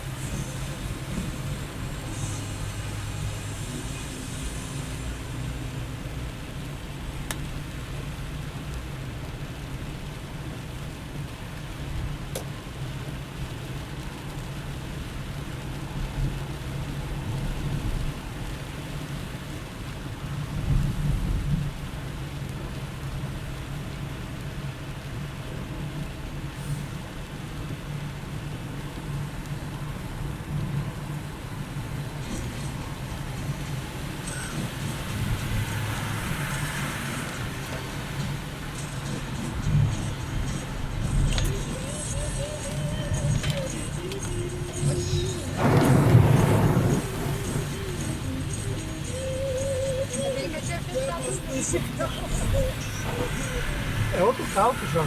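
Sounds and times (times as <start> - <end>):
rain and road noise hiss: 0.0 - 55.0
low rumble: 44.8 - 50.1.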